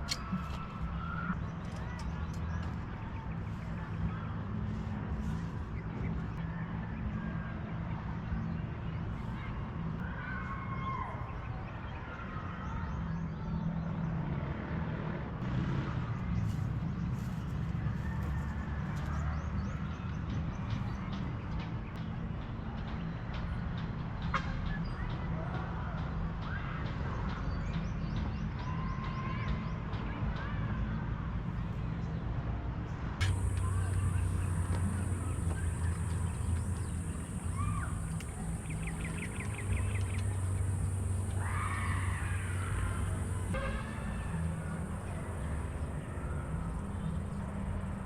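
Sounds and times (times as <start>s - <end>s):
low hum: 33.2s - 48.0s
small birds chirping: 33.2s - 48.0s
steady low rumble: 33.2s - 48.0s.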